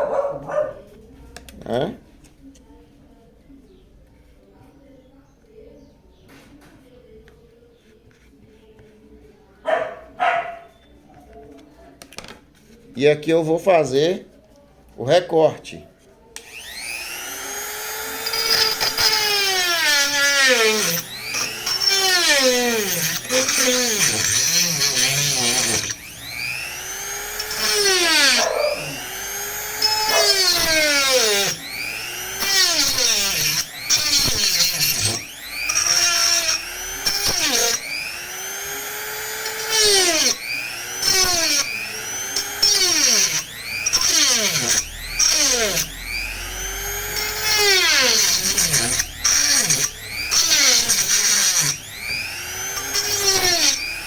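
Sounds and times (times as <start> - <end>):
rotary tool cutting plastic: 16.4 - 54.0.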